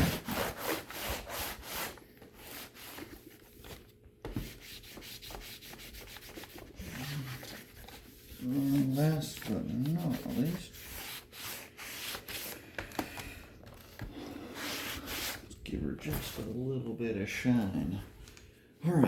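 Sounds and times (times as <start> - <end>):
hand rubbing laptop casing: 0.0 - 12.6.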